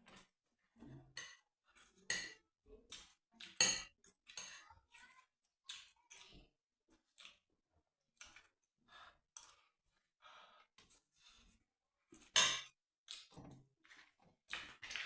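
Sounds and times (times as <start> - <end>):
person chewing and smacking: 7.0 - 7.5, 8.1 - 8.7, 13.1 - 15.0.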